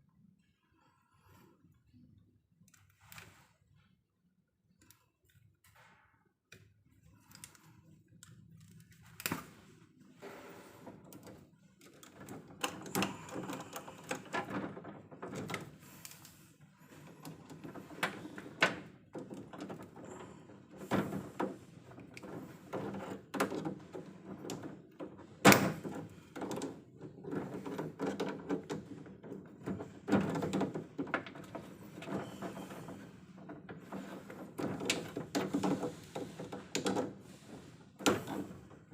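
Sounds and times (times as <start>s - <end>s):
clicks knocks and clatter of hand work: 4.8s - 38.9s.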